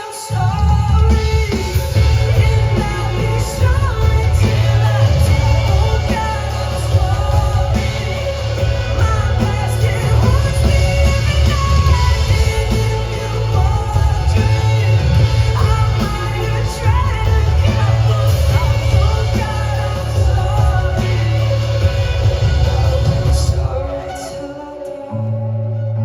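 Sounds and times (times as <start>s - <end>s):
drums: 0.0s - 26.0s
man singing lead vocals: 0.0s - 26.0s
heavy bass: 0.3s - 24.5s.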